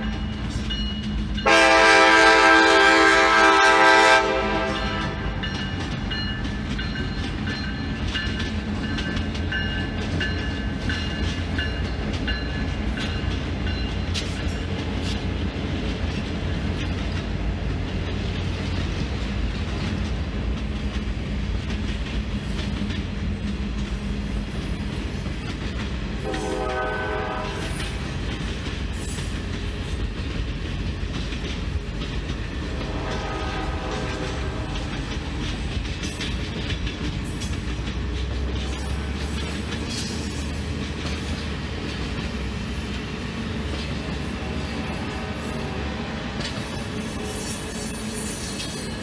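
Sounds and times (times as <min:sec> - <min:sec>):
train rumbling on rails: 0:00.0 - 0:49.0
locomotive air horn: 0:01.4 - 0:05.4, 0:26.2 - 0:28.0, 0:32.7 - 0:35.0.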